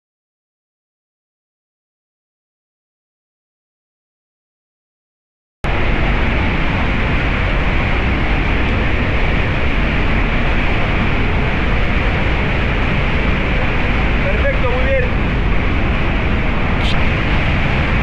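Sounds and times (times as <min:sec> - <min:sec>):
stream water rushing: 0:05.7 - 0:18.0.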